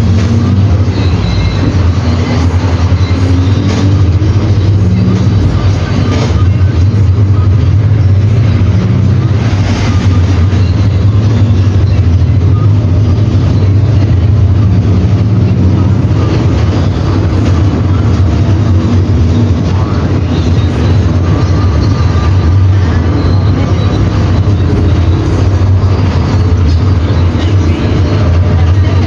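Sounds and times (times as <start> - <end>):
diesel bus engine droning: 0.0 - 29.0.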